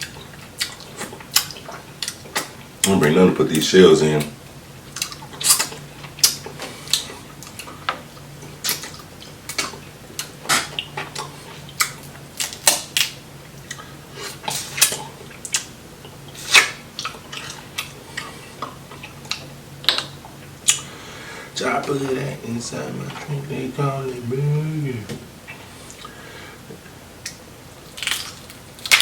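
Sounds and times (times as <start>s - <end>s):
crab shells cracking: 8.6s - 13.2s, 27.8s - 29.0s
mouth sounds: 21.6s - 25.4s.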